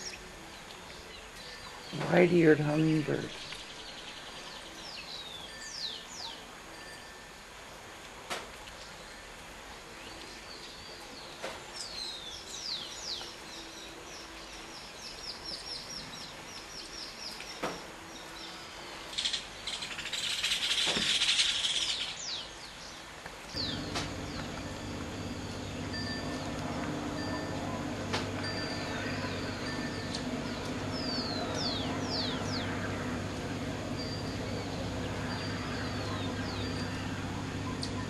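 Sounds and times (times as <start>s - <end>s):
birds chirping: 0.9s - 6.3s, 10.2s - 38.0s
low steady hum: 23.5s - 38.0s.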